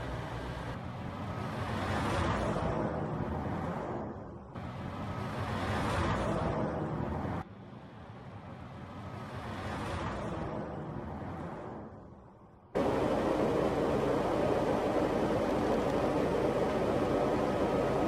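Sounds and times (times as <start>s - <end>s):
heavy trucks driving past: 12.8s - 18.0s.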